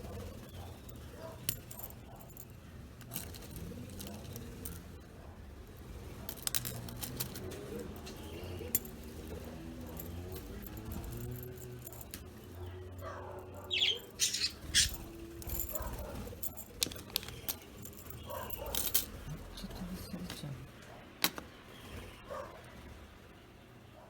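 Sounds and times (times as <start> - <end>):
metal chain toy jingling: 0.4 - 5.0, 6.2 - 19.6
bird chirp: 12.4 - 15.4.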